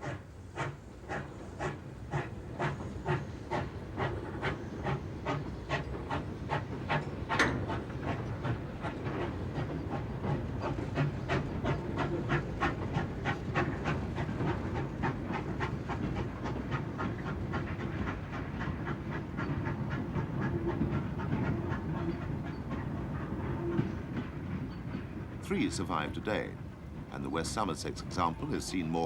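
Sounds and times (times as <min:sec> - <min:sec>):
steam locomotive chuffing: 0:00.0 - 0:29.0
train rumble: 0:00.0 - 0:29.0.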